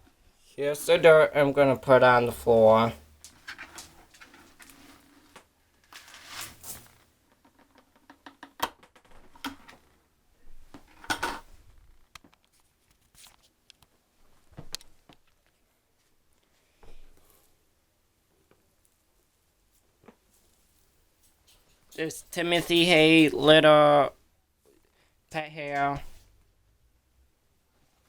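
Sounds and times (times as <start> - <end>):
debris rustling pours: 2.5 - 7.1
debris clicking and rattling on floor: 3.2 - 9.8.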